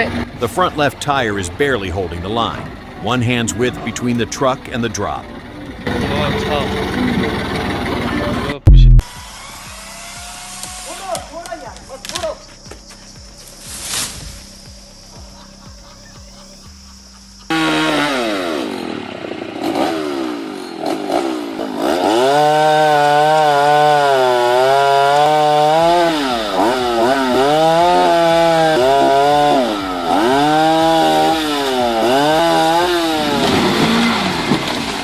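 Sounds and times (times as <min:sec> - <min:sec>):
chainsaw cutting: 0:08.7 - 0:16.0, 0:17.4 - 0:35.0.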